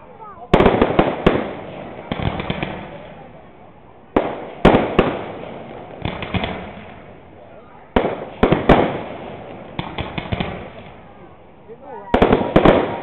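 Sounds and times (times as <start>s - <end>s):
firework crackling: 0.0s - 13.0s
firework shells bursting: 0.5s - 3.3s, 4.1s - 7.2s, 8.0s - 11.1s.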